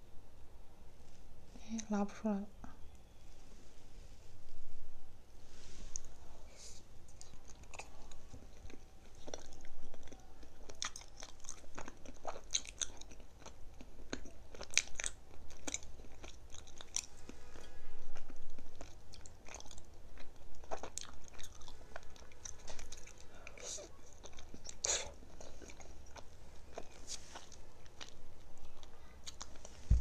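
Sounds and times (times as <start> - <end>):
crunching and chewing of a treat: 7.0 - 29.8.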